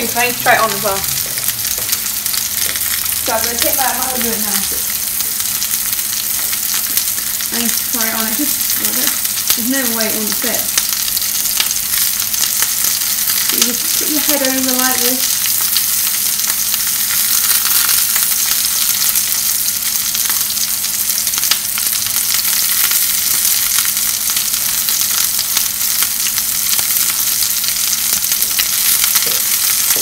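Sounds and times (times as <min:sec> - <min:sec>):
mushrooms sizzling in oil: 0:00.0 - 0:30.0.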